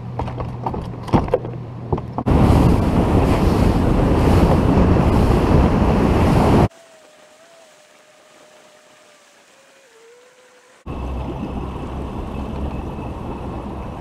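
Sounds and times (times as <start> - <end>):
low hum: 0.0 - 14.0
wind buffeting microphone: 2.2 - 6.7, 10.9 - 14.0
boat running at speed: 2.3 - 14.0
water splashes: 2.3 - 14.0.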